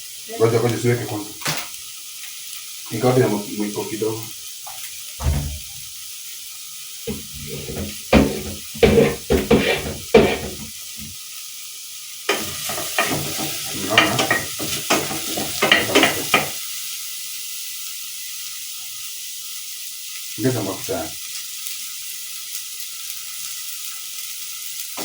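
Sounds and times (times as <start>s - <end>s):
meat sizzling in hot oil: 0.0s - 25.0s
wooden spoon scraping a pot: 7.1s - 11.1s, 12.3s - 16.6s.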